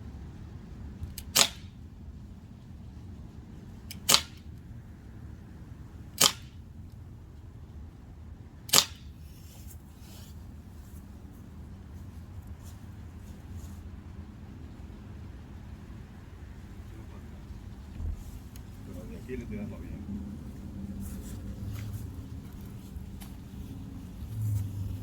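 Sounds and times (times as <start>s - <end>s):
air pistol shots: 1.0s - 1.8s, 3.9s - 4.5s, 6.2s - 6.6s, 8.7s - 9.2s.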